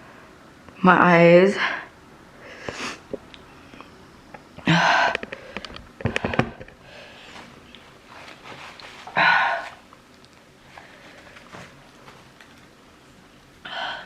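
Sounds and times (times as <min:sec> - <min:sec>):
person sniffing: 0:02.6 - 0:03.1.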